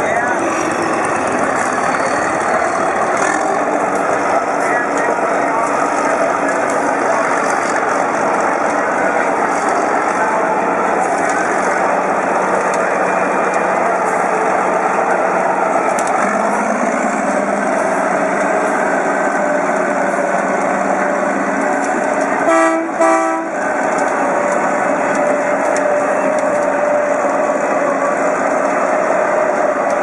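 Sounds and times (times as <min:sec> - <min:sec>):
tractor engine running: 0:00.0 - 0:30.0
horn toots: 0:22.4 - 0:23.6.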